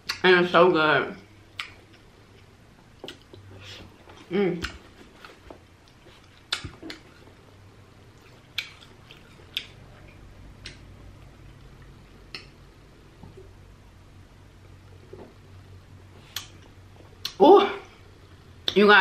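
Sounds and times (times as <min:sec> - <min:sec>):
faint low hum: 0:00.0 - 0:19.0
wet chewing clicks: 0:08.1 - 0:10.8.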